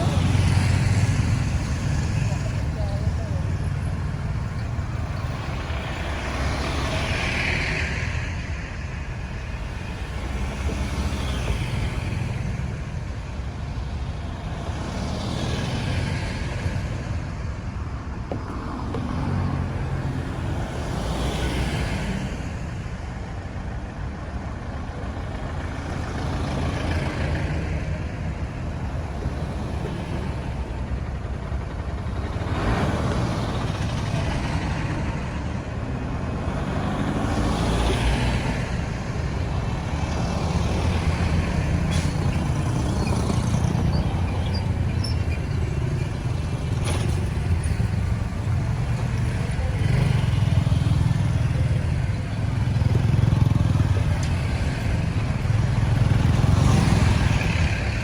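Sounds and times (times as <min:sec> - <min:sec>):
road traffic rumble: 0:00.0 - 0:58.0
vehicles passing close by: 0:00.0 - 0:58.0.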